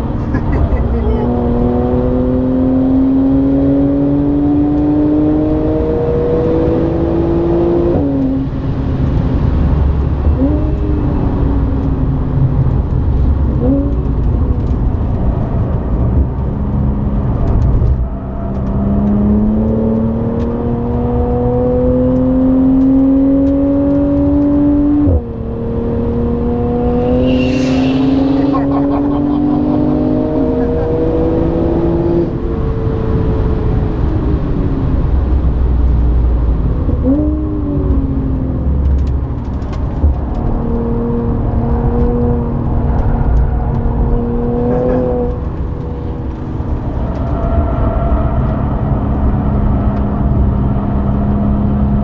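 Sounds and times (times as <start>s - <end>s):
car engine revving: 0.0s - 11.4s, 12.9s - 33.8s, 35.9s - 52.0s
brief high squeal: 27.0s - 28.9s.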